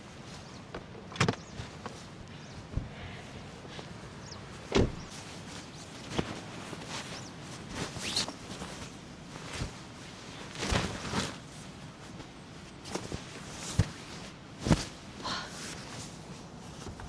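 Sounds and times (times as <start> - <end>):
knocks and rustles of movement: 0.0 - 17.0.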